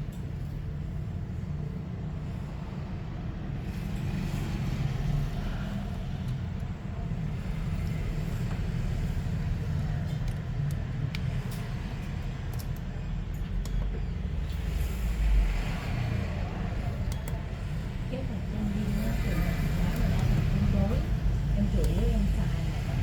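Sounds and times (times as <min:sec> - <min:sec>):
low background rumble: 0:00.0 - 0:23.0.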